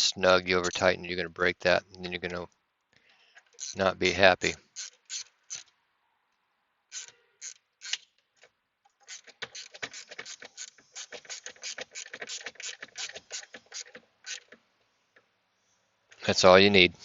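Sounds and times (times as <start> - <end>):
ratchet wrench clicking: 3.5 - 3.8, 4.4 - 5.7, 6.9 - 8.1, 9.0 - 14.6.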